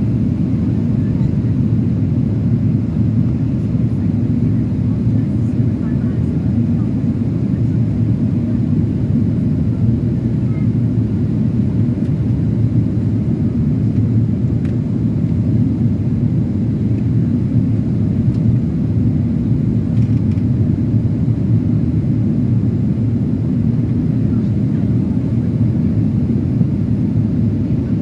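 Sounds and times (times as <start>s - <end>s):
airliner cabin engine rumble: 0.0s - 28.0s.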